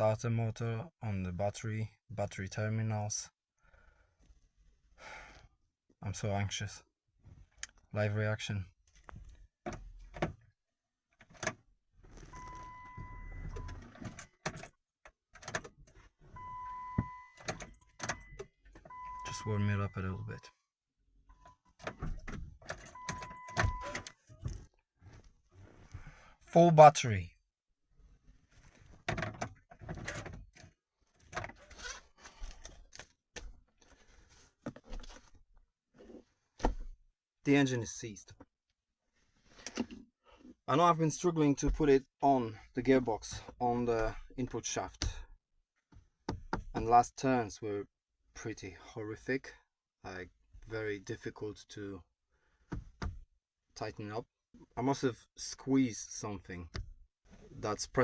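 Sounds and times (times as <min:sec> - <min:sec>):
car starter clicks and clunks: 0:21.4 - 0:24.7.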